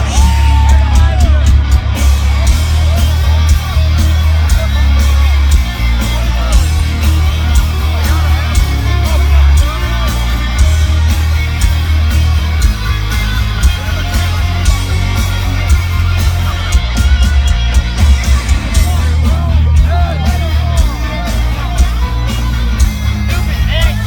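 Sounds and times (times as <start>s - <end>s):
drum hits: 0.0s - 4.6s
distorted electric guitars: 0.0s - 24.0s
heavy bass: 0.0s - 24.0s.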